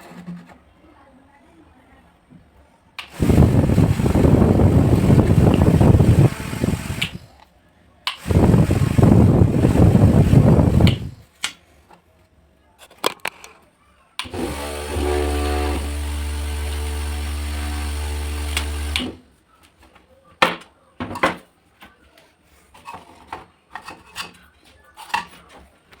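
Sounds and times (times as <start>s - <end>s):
table fan humming and whining: 3.0s - 7.3s, 8.1s - 11.2s, 14.2s - 19.2s
fan blades rushing: 3.1s - 7.3s, 8.2s - 11.2s, 14.3s - 19.2s.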